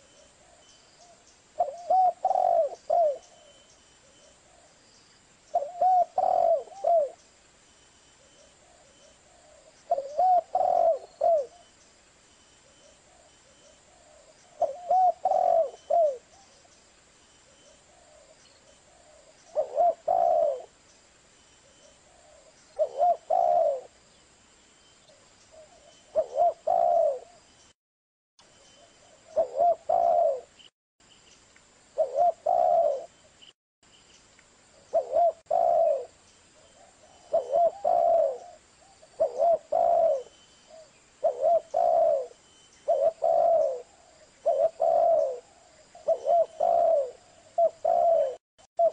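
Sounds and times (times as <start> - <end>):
dove cooing: 0.0 - 3.6, 5.5 - 7.2, 8.6 - 11.7, 12.8 - 16.6, 17.7 - 20.8, 22.0 - 24.0, 25.5 - 27.4, 29.0 - 30.6, 32.0 - 33.1, 34.9 - 48.9.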